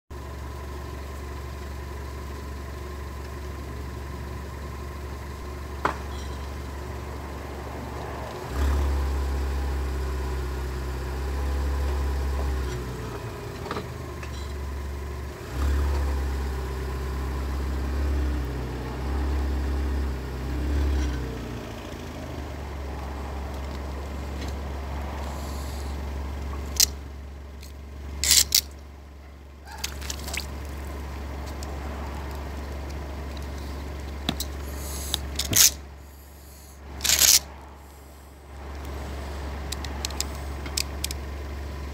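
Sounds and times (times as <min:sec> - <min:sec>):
car engine idling: 0:00.1 - 0:41.9
sharp clicks: 0:39.7 - 0:41.2.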